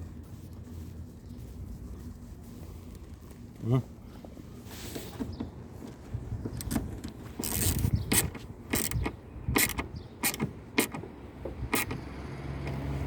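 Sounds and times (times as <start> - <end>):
screw creaking into plastic: 7.4 - 11.0, 11.7 - 12.0.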